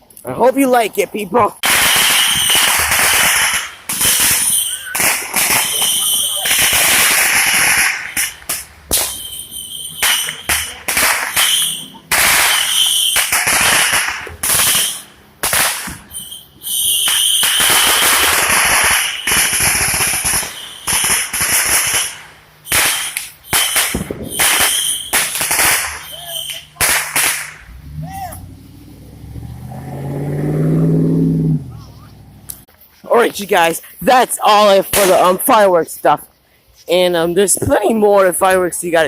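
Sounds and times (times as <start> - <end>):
fireworks hissing crackle: 1.6 - 28.0
firecracker bangs: 1.6 - 28.1.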